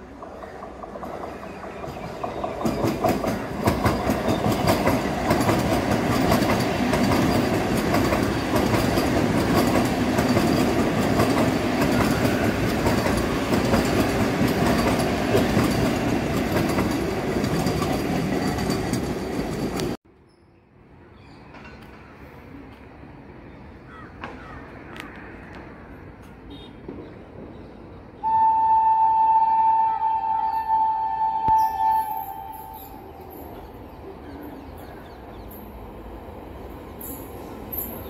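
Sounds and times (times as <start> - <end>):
electric train passing at speed: 0.0 - 20.0, 27.2 - 38.0
wheels clattering over rail joints: 0.0 - 20.0.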